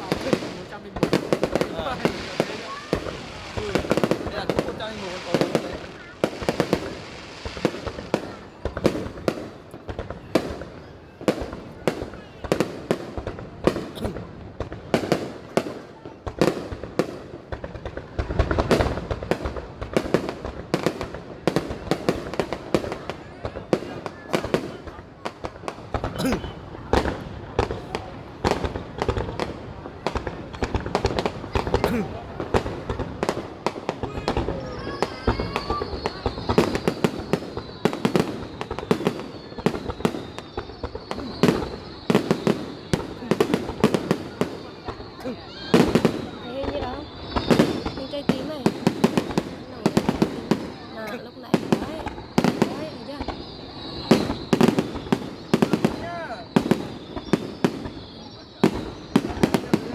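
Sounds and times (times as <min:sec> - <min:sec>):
fireworks shells bursting: 0:25.4 - 0:59.9.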